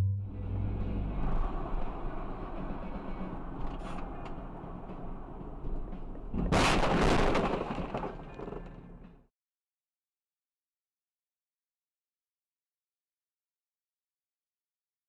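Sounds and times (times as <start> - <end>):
road and engine noise: 0.0 - 9.3
loud car crash: 6.3 - 8.8.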